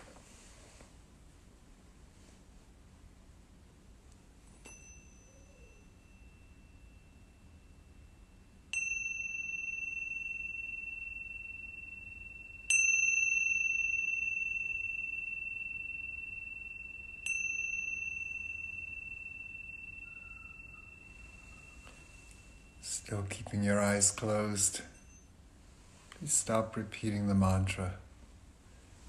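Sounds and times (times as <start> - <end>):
meditation chime ringing: 4.6 - 25.4.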